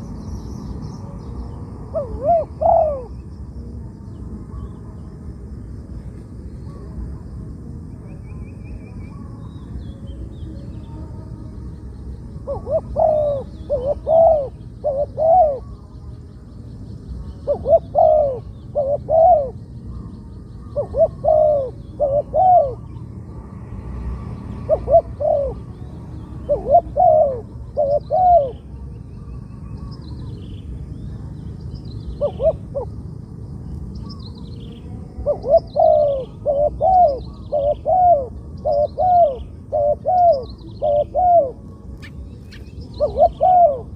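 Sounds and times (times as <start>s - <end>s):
dove cooing: 1.8s - 3.2s, 12.3s - 15.9s, 17.3s - 23.0s, 24.2s - 28.9s, 32.1s - 33.0s, 35.0s - 43.9s
small birds chirping: 7.9s - 43.9s.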